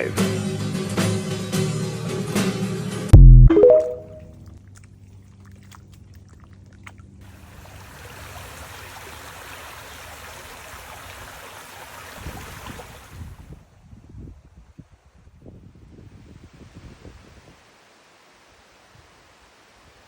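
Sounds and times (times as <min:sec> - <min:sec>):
music chord: 0:03.2 - 0:04.2
running water rushing: 0:07.3 - 0:13.2.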